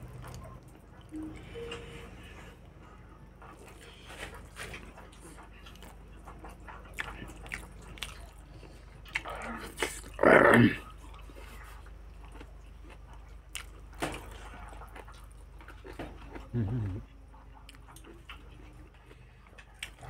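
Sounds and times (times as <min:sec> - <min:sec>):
person chewing and mouth smacking: 0:03.5 - 0:10.2, 0:10.8 - 0:20.0.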